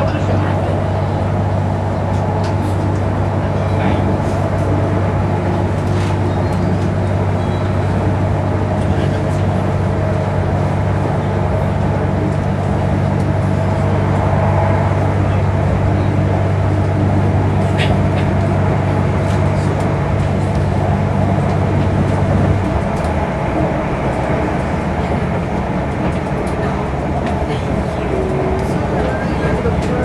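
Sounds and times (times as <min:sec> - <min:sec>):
low hum: 0:00.0 - 0:30.0
train carriage rumble: 0:00.0 - 0:30.0.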